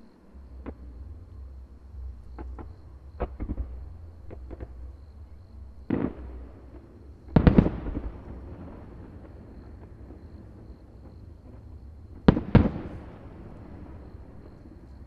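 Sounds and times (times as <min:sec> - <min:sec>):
fireworks bursting: 0:05.9 - 0:14.7.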